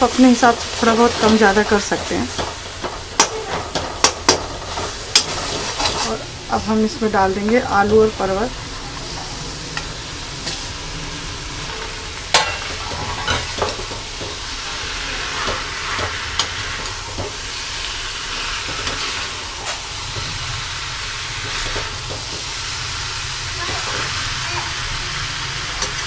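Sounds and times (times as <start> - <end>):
vegetables sizzling in oil: 0.0 - 26.0
metal spoon scraping a pan: 1.2 - 6.2, 11.6 - 14.4.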